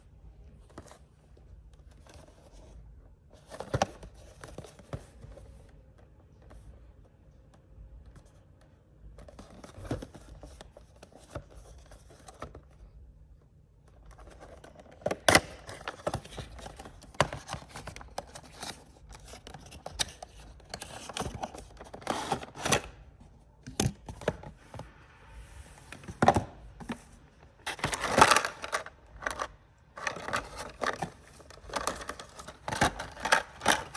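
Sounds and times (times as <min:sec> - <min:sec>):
packaging clicking and tearing: 0:27.7 - 0:33.9.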